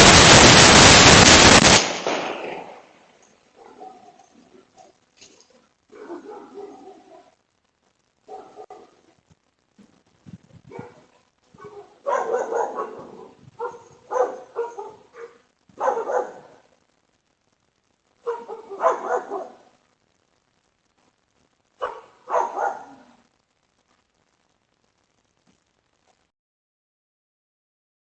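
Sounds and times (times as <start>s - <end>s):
dog barking: 3.6s - 5.0s, 5.9s - 7.4s, 8.3s - 9.1s, 10.7s - 16.7s, 18.2s - 19.7s, 21.8s - 23.2s.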